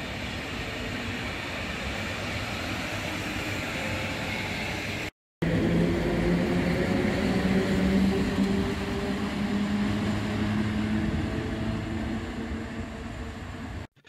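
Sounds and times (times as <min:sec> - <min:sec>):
electric locomotive hum: 0:00.0 - 0:13.9
train coaches rumbling on rails: 0:00.0 - 0:13.9.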